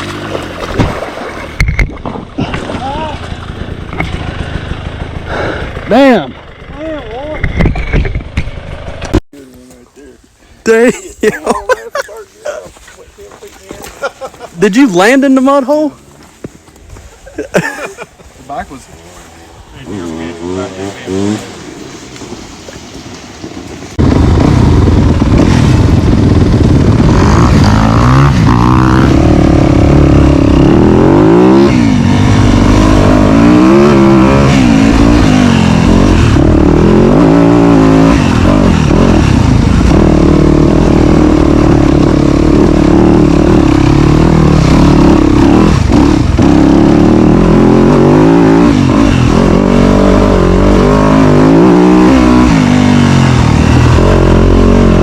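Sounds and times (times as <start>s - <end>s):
dirt bike engine revving: 3.0s - 9.2s, 19.6s - 22.3s, 23.9s - 55.0s.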